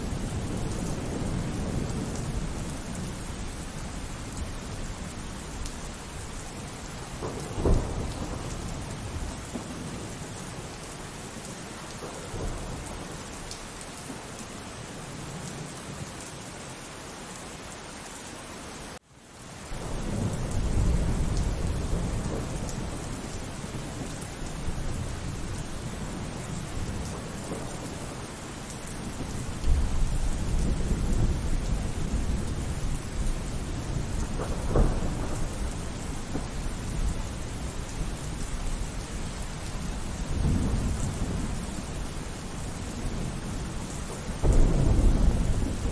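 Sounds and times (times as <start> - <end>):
thunder rumbling: 0.0 - 10.8, 11.4 - 13.3, 19.7 - 45.9
steady rainfall: 0.0 - 45.9
loud thunderclap: 7.1 - 10.1, 29.2 - 37.6, 42.6 - 45.9.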